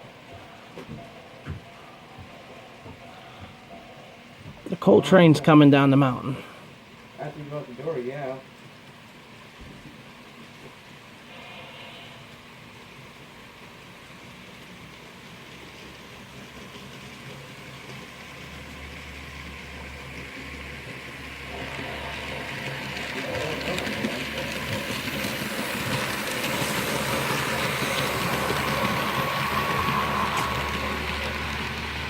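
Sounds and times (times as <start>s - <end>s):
model train motor hum: 10.3s - 32.0s
wheels clattering over track: 14.7s - 32.0s.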